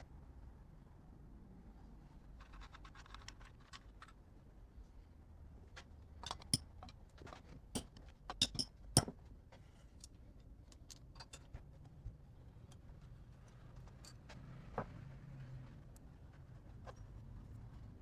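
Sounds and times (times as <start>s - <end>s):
metal parts clicking and clinking: 6.2s - 6.9s, 7.8s - 9.1s.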